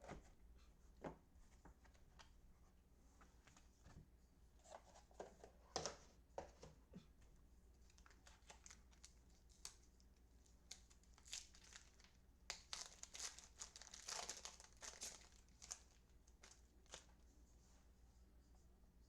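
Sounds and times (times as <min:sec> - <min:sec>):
wrapper crinkling and tearing: 0:07.9 - 0:09.9, 0:10.6 - 0:17.1.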